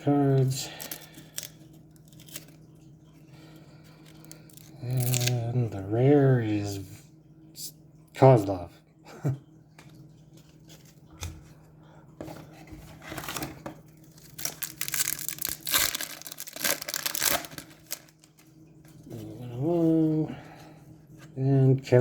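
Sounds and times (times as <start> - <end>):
card pack wrapper tearing and crinkling: 0.4 - 2.6, 4.1 - 5.4, 14.2 - 18.5.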